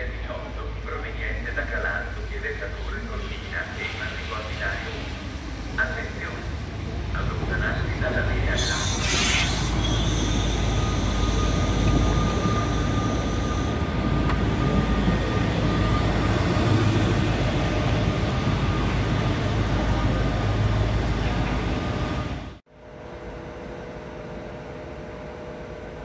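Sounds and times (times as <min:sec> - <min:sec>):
train running on track: 0:00.0 - 0:26.0
faint high whine: 0:08.6 - 0:13.8.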